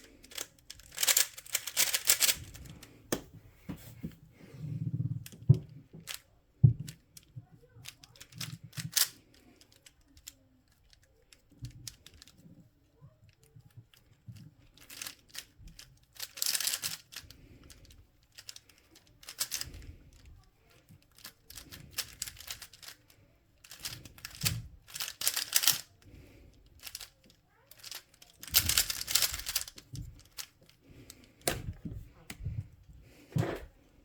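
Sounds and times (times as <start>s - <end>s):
puzzle cube clicking: 0.0s - 3.0s, 7.8s - 10.0s, 14.8s - 20.3s, 21.2s - 30.5s.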